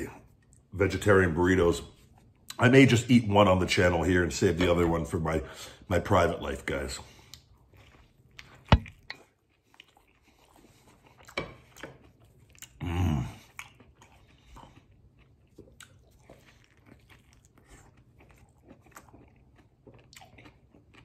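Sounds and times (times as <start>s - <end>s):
man chewing with wet mouth noises: 2.0s - 2.6s, 7.1s - 21.0s
man humming mm: 12.8s - 13.4s.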